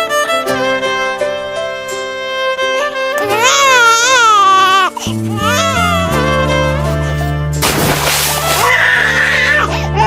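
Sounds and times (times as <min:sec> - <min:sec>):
string music: 0:00.0 - 0:10.0.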